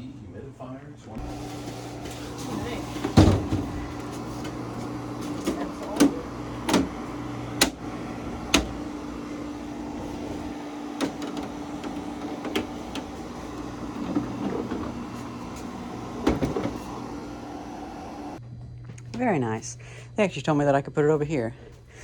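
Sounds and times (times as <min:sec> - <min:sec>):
dehumidifier humming: 0:01.0 - 0:22.0
knocks and clunks of handling: 0:01.2 - 0:17.6.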